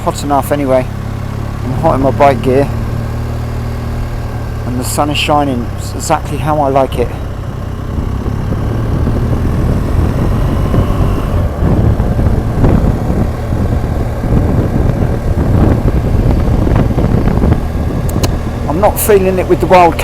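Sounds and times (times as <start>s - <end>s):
motorcycle engine rumbling: 0.0s - 20.0s
road noise: 0.0s - 20.0s
wind noise: 7.7s - 20.0s.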